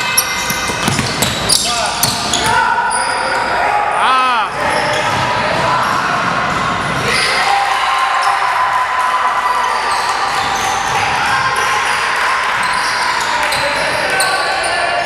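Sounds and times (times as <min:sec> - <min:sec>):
basketball dribbling on court: 0:00.4 - 0:02.5.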